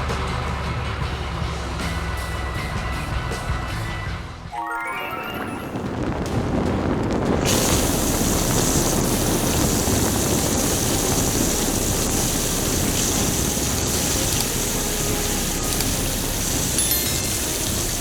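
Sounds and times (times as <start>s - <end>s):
loud hiss: 6.0s - 18.0s
low mechanical rumble: 7.3s - 16.8s.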